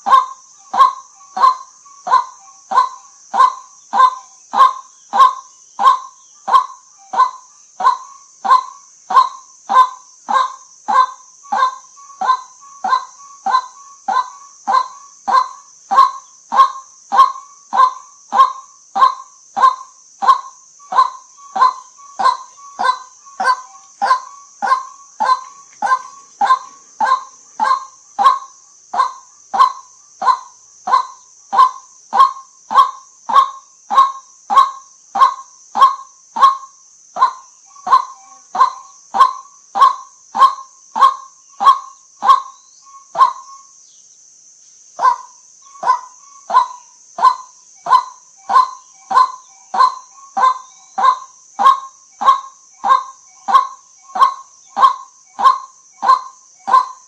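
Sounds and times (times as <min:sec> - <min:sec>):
bird short calls: 0:00.0 - 0:36.6
steady high hiss: 0:00.0 - 0:57.0.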